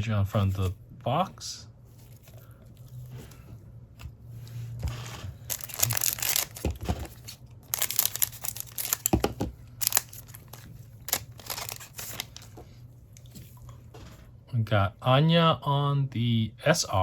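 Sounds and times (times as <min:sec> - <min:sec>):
wrapper tearing and crinkling: 0:05.4 - 0:12.5.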